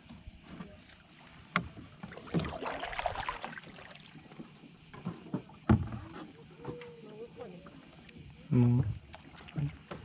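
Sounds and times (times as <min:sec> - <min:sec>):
kayak hull and paddle knocking: 0:01.5 - 0:03.6, 0:04.3 - 0:06.9
water splashing: 0:01.9 - 0:04.5, 0:09.0 - 0:10.0.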